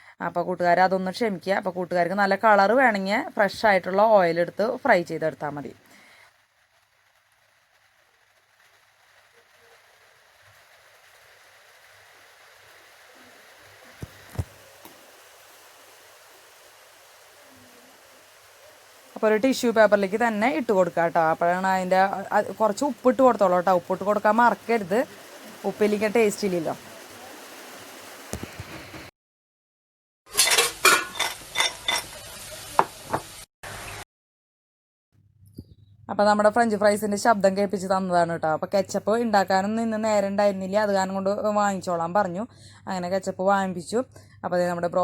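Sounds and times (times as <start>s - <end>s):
fries sizzling in hot oil: 0.6s - 29.1s, 30.3s - 34.0s.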